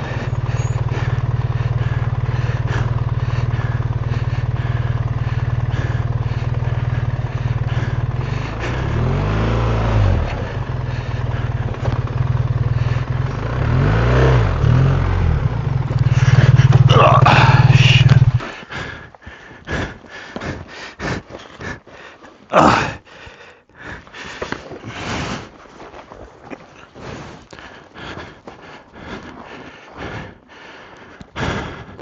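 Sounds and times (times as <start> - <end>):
motorcycle engine revving: 0.0 - 19.1.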